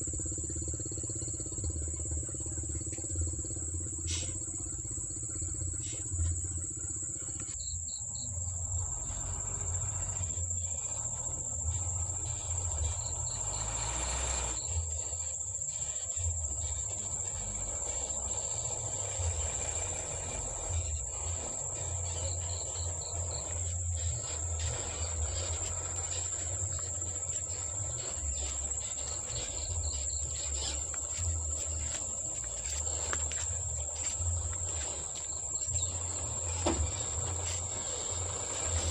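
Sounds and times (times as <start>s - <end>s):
insects trilling: 0.0s - 38.9s
pulsed insect chirps: 0.0s - 38.9s.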